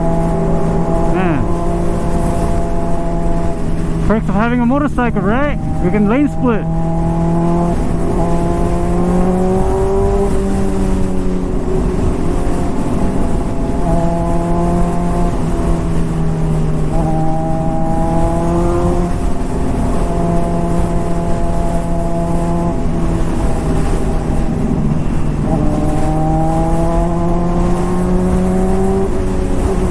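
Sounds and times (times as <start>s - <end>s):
motorcycle engine revving: 0.0s - 29.9s
wind noise on microphone: 6.6s - 29.9s.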